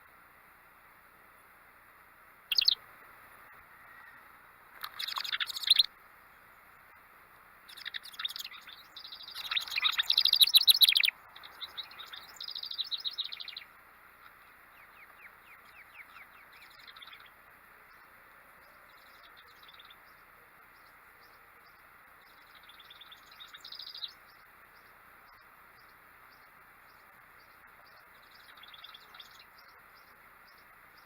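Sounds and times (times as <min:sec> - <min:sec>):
songbirds chirping: 0:00.0 - 0:31.0
downward-sliding bird calls: 0:02.5 - 0:02.8, 0:04.8 - 0:05.9, 0:07.7 - 0:13.6.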